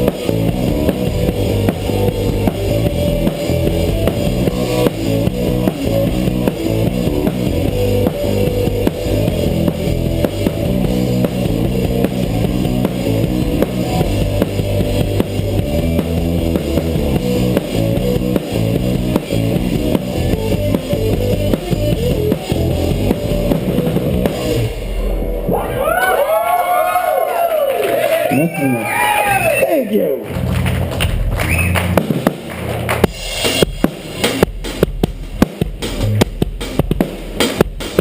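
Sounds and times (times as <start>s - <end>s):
drum kit: 0.0s - 26.8s, 30.3s - 38.0s
electric guitar: 0.0s - 27.3s
bass line: 0.0s - 38.0s.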